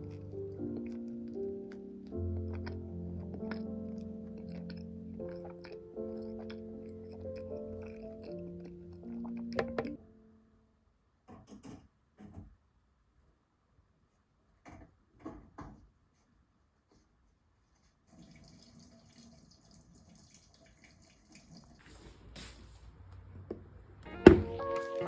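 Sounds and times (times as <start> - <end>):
faint water: 18.0 - 22.1.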